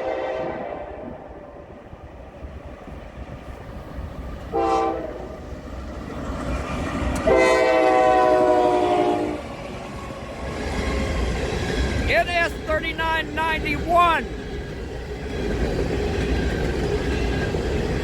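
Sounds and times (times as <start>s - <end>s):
locomotive air horn blasts: 0.0s - 1.4s, 4.5s - 5.3s, 7.2s - 9.4s
train rumbling: 0.0s - 18.0s.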